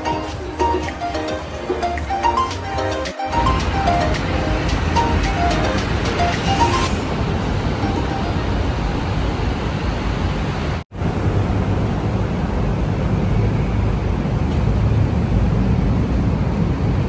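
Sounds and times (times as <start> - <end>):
wind rushing: 0.0 - 13.2
motorcycle road noise: 0.0 - 17.0.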